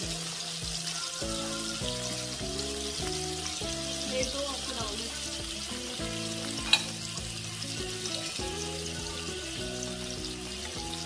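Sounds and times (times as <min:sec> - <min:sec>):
background music with held notes: 0:00.0 - 0:11.0
food sizzling in hot oil: 0:00.0 - 0:11.0.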